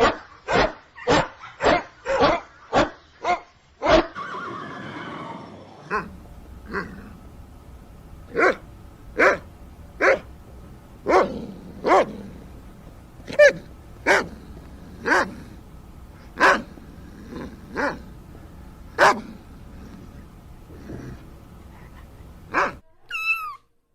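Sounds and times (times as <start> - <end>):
animal calls falling in pitch: 4.2 - 6.0.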